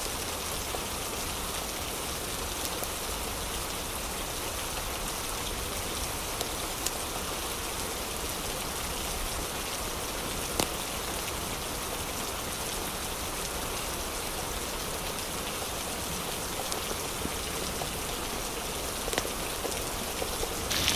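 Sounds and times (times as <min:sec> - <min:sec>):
steady rain falling: 0:00.0 - 0:20.9
sharp raindrop hits: 0:20.4 - 0:20.9.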